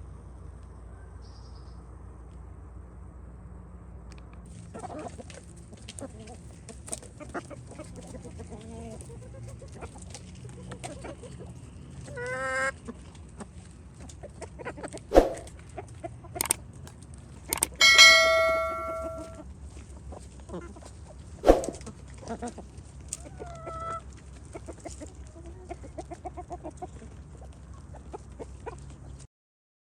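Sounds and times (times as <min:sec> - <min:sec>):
sharp knocks: 0:17.6 - 0:19.4
chickens clucking: 0:23.2 - 0:29.0.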